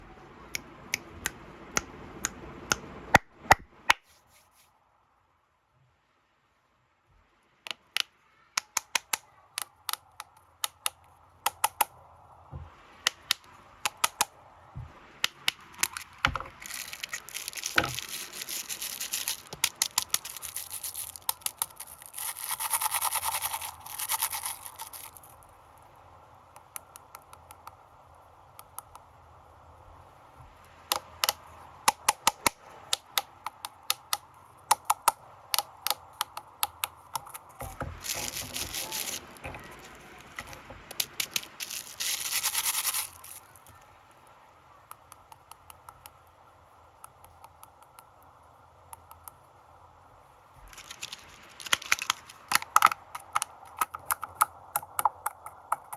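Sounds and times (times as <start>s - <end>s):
plastic wrappers crinkling: 15.3s - 25.4s, 37.2s - 43.7s, 50.6s - 53.9s.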